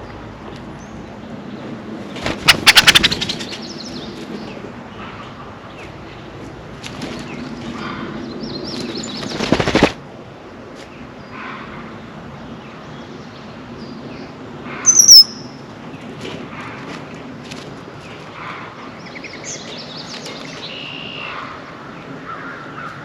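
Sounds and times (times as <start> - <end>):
wings flapping: 2.1 - 3.7, 8.7 - 10.0
soft bird calls: 2.1 - 6.2
sharp high bird call: 2.5 - 3.2, 14.9 - 15.4.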